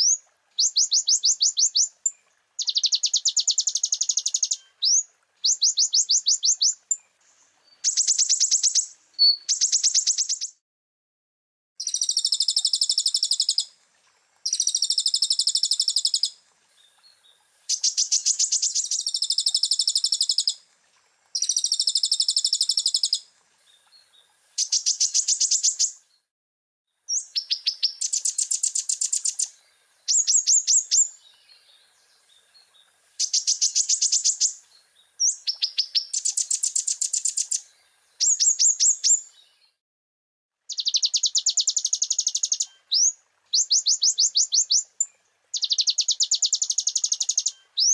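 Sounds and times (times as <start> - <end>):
bird singing high-pitched trills: 0.0 - 7.1, 7.7 - 10.5, 11.8 - 13.7, 14.5 - 16.4, 17.7 - 20.6, 21.4 - 23.2, 30.1 - 31.2, 38.2 - 39.3, 40.7 - 47.9.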